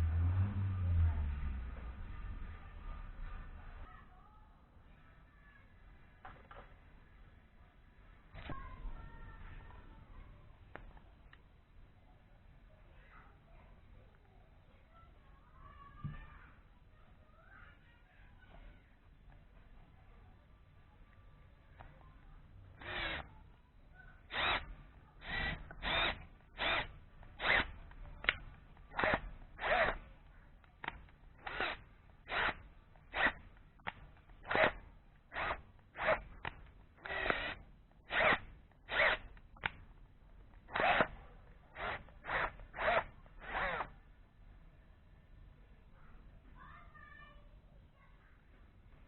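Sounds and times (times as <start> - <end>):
power drill bursts: 22.8 - 23.4, 24.2 - 30.0, 30.8 - 39.8, 40.7 - 44.0.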